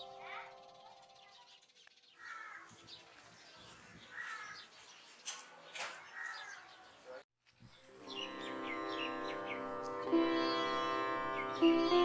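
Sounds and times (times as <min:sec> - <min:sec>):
faint birds calling: 0:00.0 - 0:12.0
sharp bird chirps: 0:00.2 - 0:03.1.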